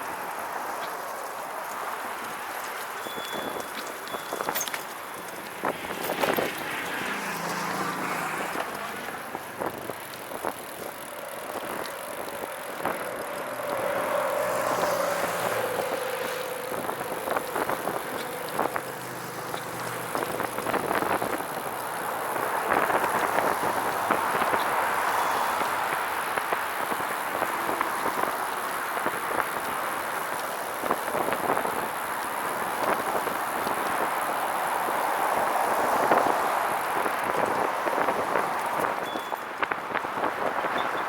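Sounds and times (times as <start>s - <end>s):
tyre and drivetrain noise: 0.0s - 41.0s.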